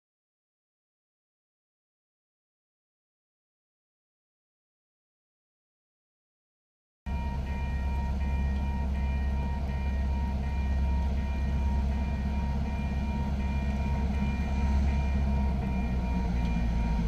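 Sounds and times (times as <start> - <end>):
faint steady high tones: 7.1 - 17.0
locomotive engine rumble: 7.1 - 17.0.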